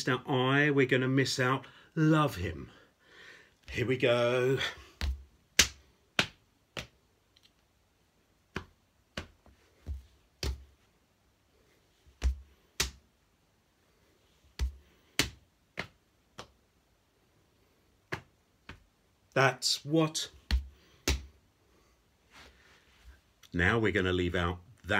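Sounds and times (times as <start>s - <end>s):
hands slapping skin: 5.0s - 7.0s, 8.5s - 10.8s, 12.1s - 13.1s, 14.5s - 16.6s, 18.0s - 18.9s, 20.4s - 21.4s.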